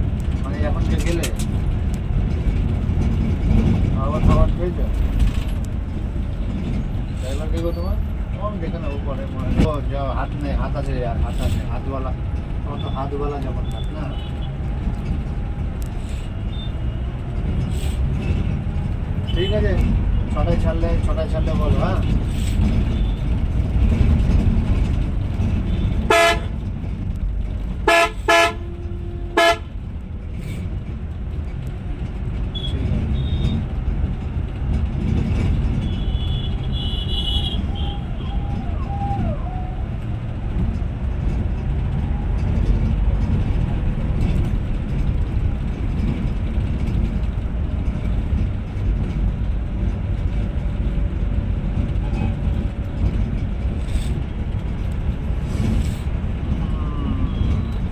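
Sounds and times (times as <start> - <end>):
bus engine and road drone: 0.0 - 57.9
vehicle horn tooting: 25.7 - 26.6, 27.9 - 29.7, 32.5 - 33.6, 35.8 - 38.9.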